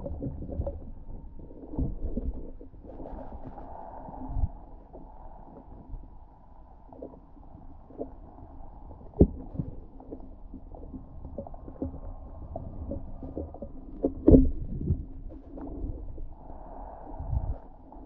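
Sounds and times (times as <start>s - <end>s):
dull underwater knocks and thumps: 0.0s - 3.6s, 9.0s - 16.2s
low underwater rumble: 0.0s - 18.0s.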